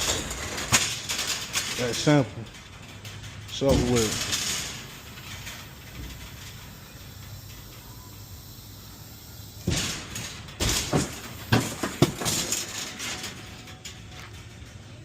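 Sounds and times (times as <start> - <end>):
loud knocks and clattering bangs: 0.0 - 6.8, 9.6 - 14.6.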